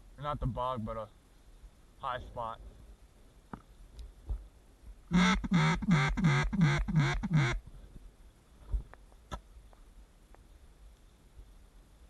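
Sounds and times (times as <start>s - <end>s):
duck quacks: 5.1s - 7.6s.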